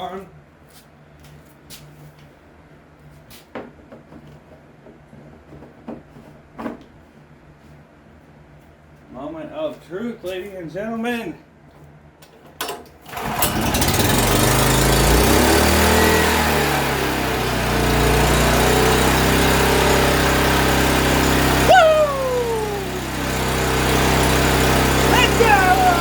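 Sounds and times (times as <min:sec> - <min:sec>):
pull starter: 0:13.0 - 0:26.0
generator engine running: 0:13.1 - 0:26.0
loud falling pitched sound: 0:21.6 - 0:23.8.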